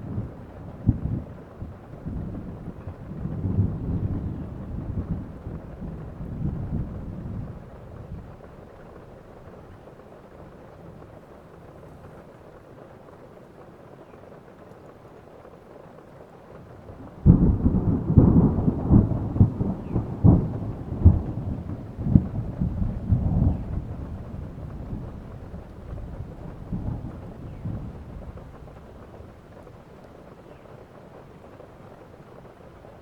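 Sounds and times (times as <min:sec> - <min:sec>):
thunderclap: 0:00.0 - 0:08.8, 0:16.8 - 0:30.0
steady rain: 0:00.0 - 0:33.0.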